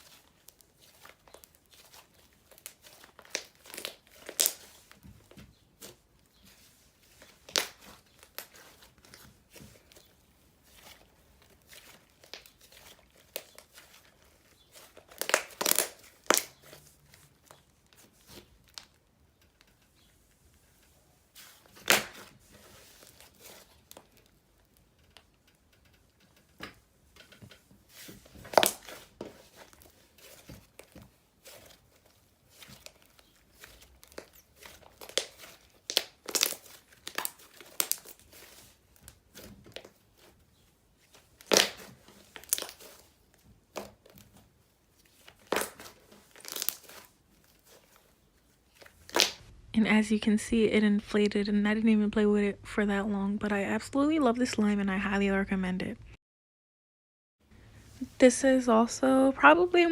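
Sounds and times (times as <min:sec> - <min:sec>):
slime crackling and popping: 0:00.0 - 0:19.8, 0:21.4 - 0:25.6, 0:27.9 - 0:49.6
slime snapping: 0:07.5 - 0:08.6, 0:14.6 - 0:16.7, 0:34.1 - 0:38.2, 0:41.4 - 0:42.9, 0:45.4 - 0:47.8, 0:48.8 - 0:49.4.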